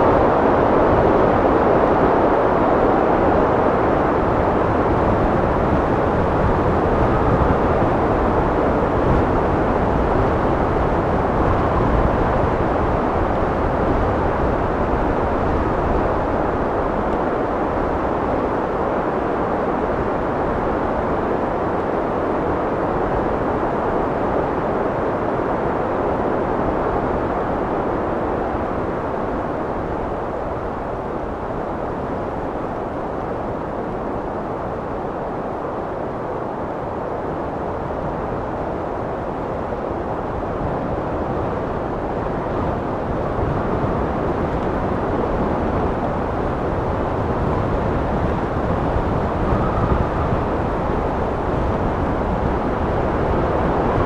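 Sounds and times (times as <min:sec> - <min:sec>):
wind blowing: 0:28.2 - 0:54.0.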